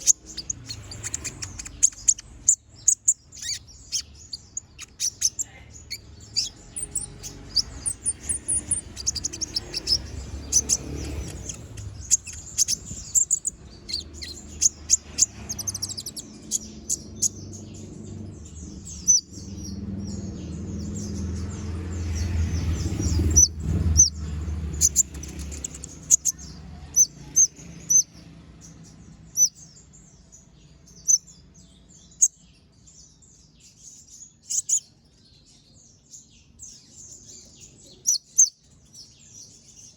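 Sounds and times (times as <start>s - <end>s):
low background rumble: 0.0s - 30.2s
sunbird singing chirps and trills: 0.0s - 39.9s.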